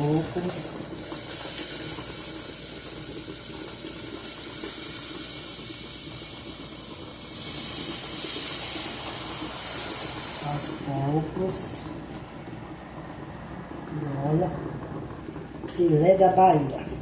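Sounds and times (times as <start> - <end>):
liquid hissing in hot pan: 0.0 - 12.1.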